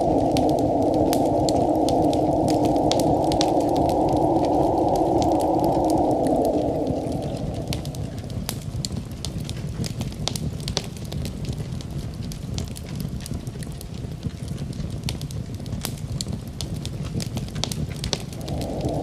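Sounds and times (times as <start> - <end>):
steady noise band: 0.0 - 11.5, 18.2 - 19.0
wood fire crackling: 0.0 - 19.0.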